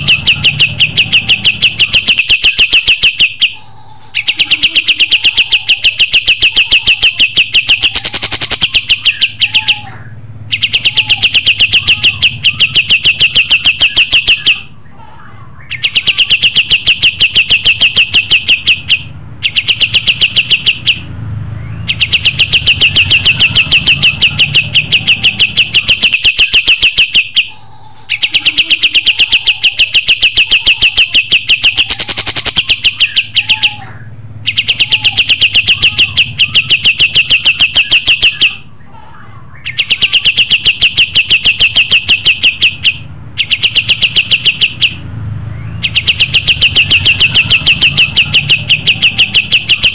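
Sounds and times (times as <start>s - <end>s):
songbird trilling: 0.0s - 49.9s.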